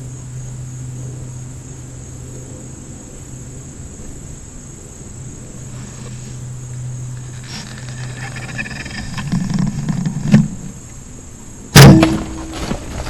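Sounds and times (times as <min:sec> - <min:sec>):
steady low hum: 0:00.0 - 0:13.0
sharp loud knock: 0:11.8 - 0:12.8.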